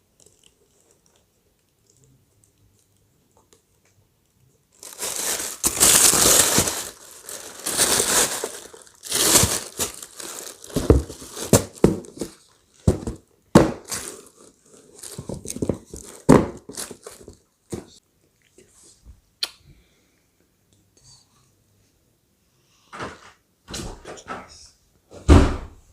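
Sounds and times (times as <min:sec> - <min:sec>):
packaging crinkling and rustling: 0:04.7 - 0:18.0.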